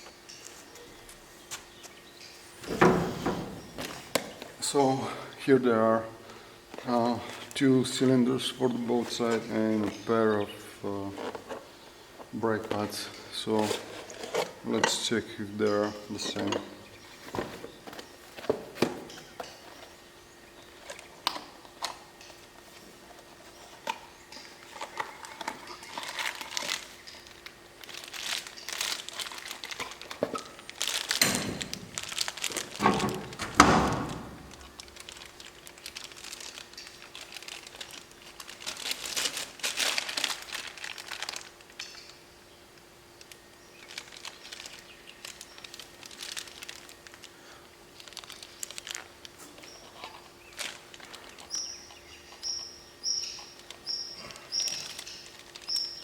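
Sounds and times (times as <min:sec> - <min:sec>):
packaging crinkling and rustling: 0:02.5 - 0:04.9, 0:20.6 - 0:42.2, 0:43.2 - 0:52.6, 0:53.3 - 0:56.0
knocks of parts handled: 0:31.1 - 0:34.8
bird chirping: 0:51.3 - 0:56.0.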